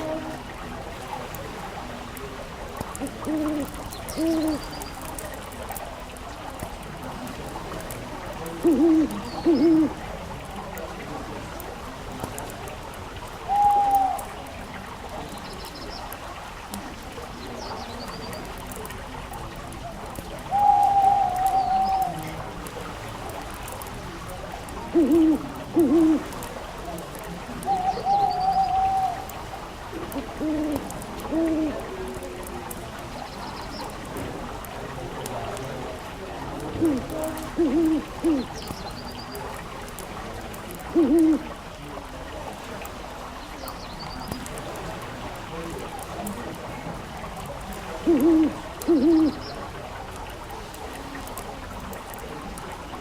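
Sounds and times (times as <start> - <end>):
owl hoot: 2.9 - 4.8, 8.6 - 10.1, 13.4 - 14.4, 20.5 - 22.4, 24.9 - 26.4, 27.6 - 29.4, 30.0 - 32.0, 36.7 - 38.7, 40.9 - 41.5, 48.0 - 49.5.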